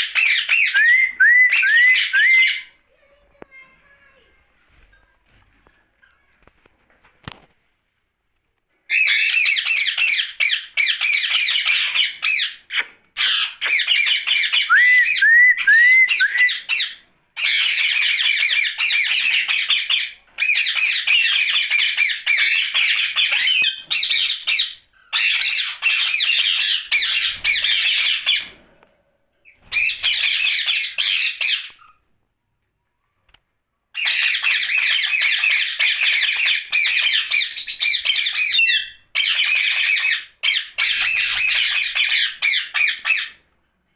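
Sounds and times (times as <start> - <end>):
parakeet squawking and chattering: 0.0 - 0.8, 8.9 - 14.7, 16.4 - 28.6, 29.4 - 32.1, 33.9 - 43.4.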